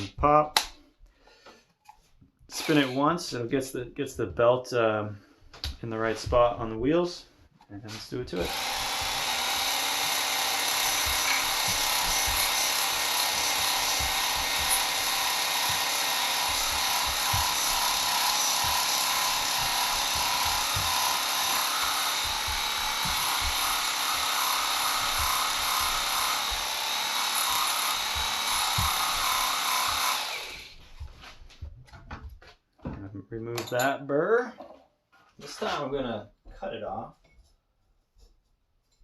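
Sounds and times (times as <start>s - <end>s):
belt sander grinding blade: 8.0s - 30.8s.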